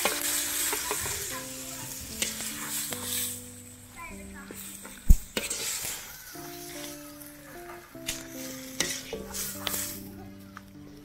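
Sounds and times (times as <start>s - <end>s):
spatula clanking against pan: 0.0s - 3.3s, 4.5s - 10.0s
metal spatula scraping wok: 0.0s - 3.8s, 4.5s - 10.1s
food sizzling in a wok: 0.0s - 10.3s.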